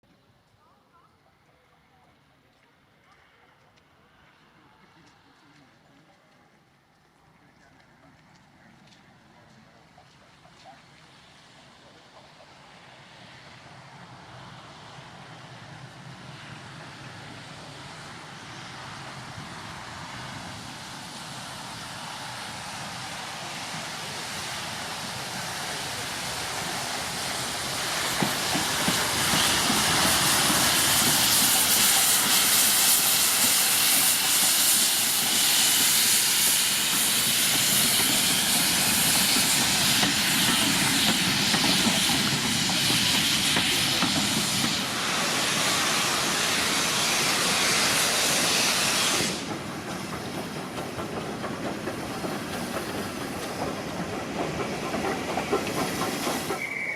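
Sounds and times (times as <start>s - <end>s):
steam locomotive hissing: 11.1s - 56.9s.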